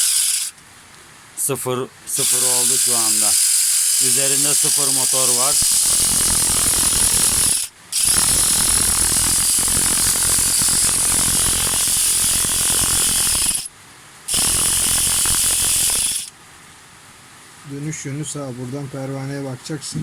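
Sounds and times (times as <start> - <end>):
shearing machine motor whirring: 0.0 - 0.5, 2.1 - 13.7, 14.3 - 16.3.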